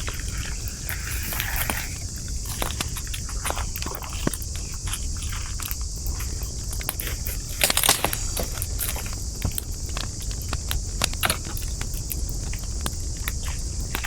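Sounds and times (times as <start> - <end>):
wood fire crackling and popping: 6.8 - 14.0.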